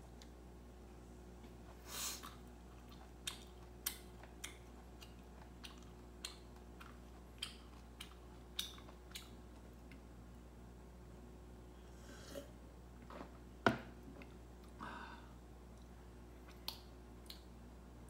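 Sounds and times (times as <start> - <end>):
crunchy chewing: 2.2 - 10.0.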